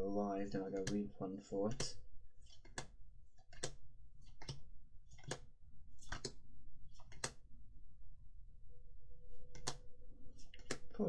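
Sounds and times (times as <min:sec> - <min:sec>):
trading cards flicked by hand: 0:00.8 - 0:07.5, 0:09.5 - 0:11.0.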